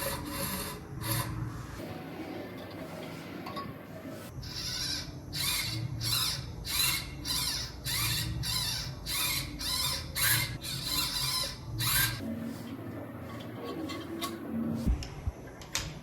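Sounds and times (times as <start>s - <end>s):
scraping strokes: 6.8s - 14.9s.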